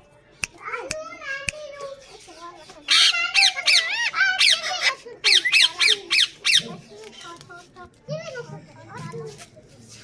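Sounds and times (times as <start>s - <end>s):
parakeet screeching: 2.8s - 6.9s.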